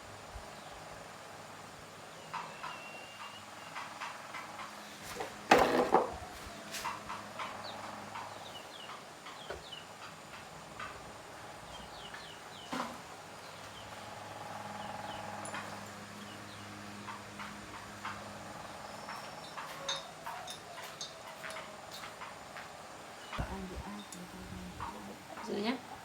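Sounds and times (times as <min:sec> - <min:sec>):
faint short chirping calls: 0:02.2 - 0:04.0
steady low hum: 0:21.6 - 0:26.0.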